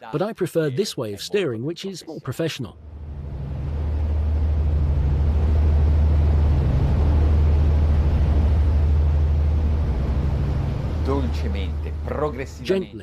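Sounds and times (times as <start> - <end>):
rush of water and air: 2.8 - 12.2
boat engines droning: 2.8 - 13.0.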